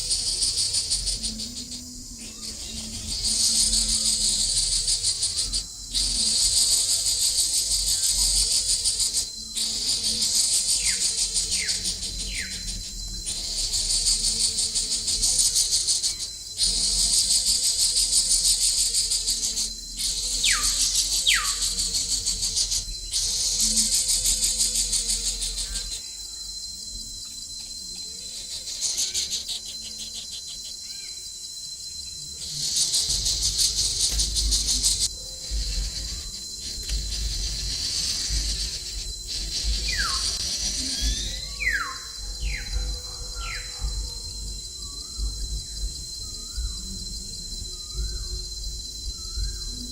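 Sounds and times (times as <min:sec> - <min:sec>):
insects buzzing: 0:00.0 - 0:49.9
bird whistled calls: 0:20.0 - 0:26.0, 0:37.1 - 0:43.9.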